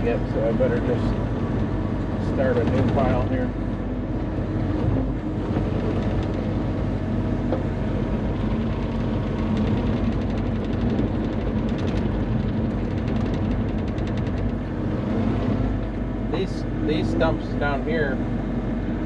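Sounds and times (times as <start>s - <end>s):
diesel engine running: 0.0s - 19.0s
rapid ticking clatter: 5.6s - 6.7s, 8.2s - 14.8s.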